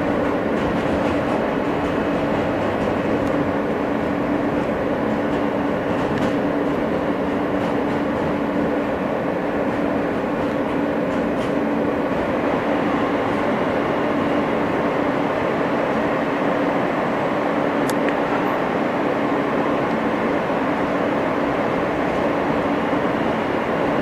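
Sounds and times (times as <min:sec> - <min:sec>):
wheels rumbling on rail: 0:00.0 - 0:24.0.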